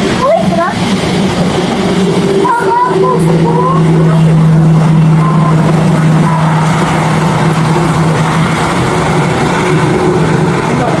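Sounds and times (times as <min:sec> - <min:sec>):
aircraft engines roaring: 0:00.0 - 0:11.0.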